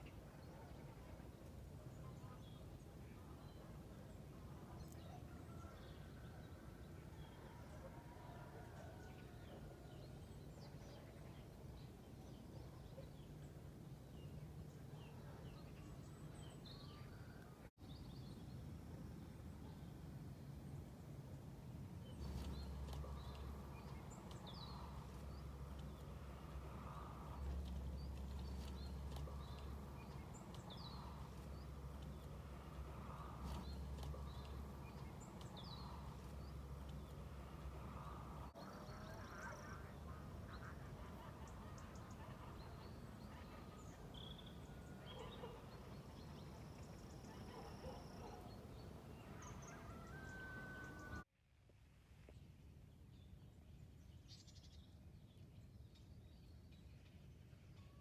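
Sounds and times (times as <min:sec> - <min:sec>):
low hum: 0:21.7 - 0:47.7
small birds chirping: 0:22.0 - 0:51.2.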